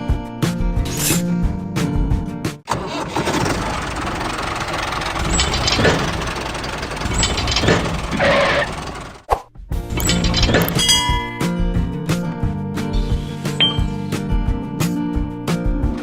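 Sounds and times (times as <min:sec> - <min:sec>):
small motor rattling: 0:02.7 - 0:09.3, 0:10.0 - 0:10.8.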